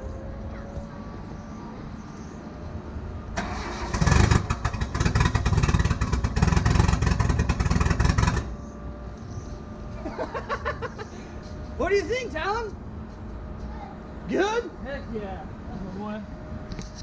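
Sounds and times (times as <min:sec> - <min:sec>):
car engine cranking and running roughly: 0:03.4 - 0:08.6.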